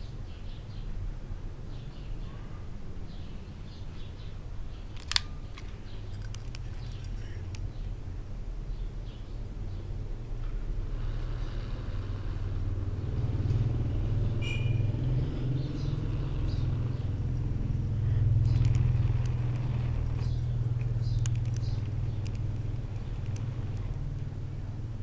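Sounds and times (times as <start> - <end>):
sharp clicks: 4.9 - 7.7, 16.6 - 24.3.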